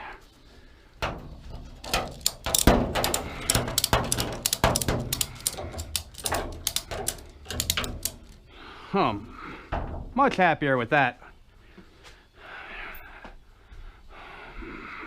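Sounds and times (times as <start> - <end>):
clicks and clatter of parts: 1.0 - 8.5.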